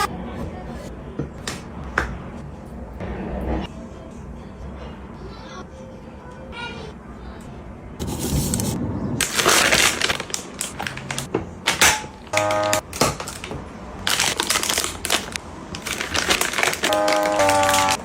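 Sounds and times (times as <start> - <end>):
plastic crinkling and rustling: 8.0 - 18.0.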